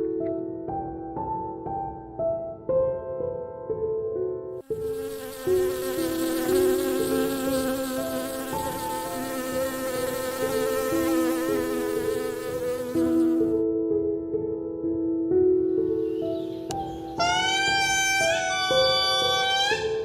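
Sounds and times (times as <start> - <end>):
soft music of held notes: 0.0 - 20.0
flying insect buzzing: 4.6 - 13.6.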